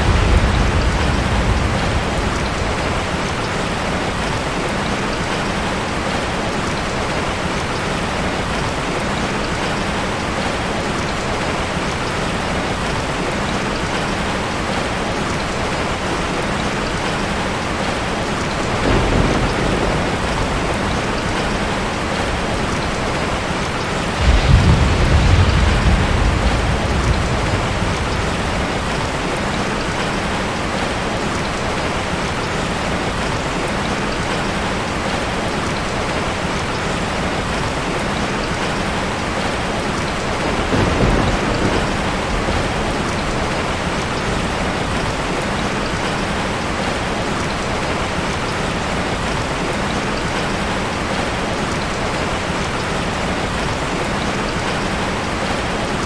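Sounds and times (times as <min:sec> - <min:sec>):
water rushing: 0:00.0 - 0:56.0
deep low rumble: 0:24.2 - 0:29.3.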